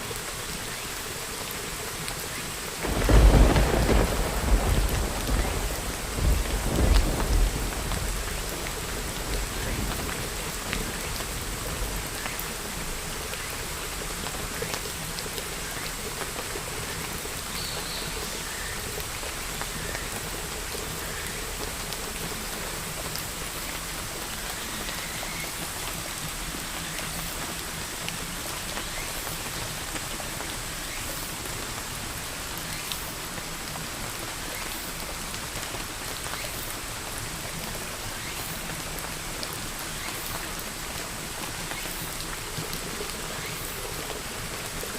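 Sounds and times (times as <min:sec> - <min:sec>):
rain pattering: 0:00.0 - 0:44.9
thunder rumble: 0:02.8 - 0:11.9.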